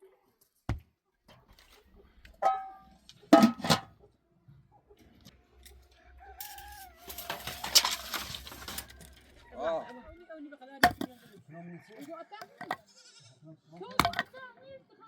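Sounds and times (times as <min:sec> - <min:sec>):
rooster crowing: 0:05.9 - 0:07.4.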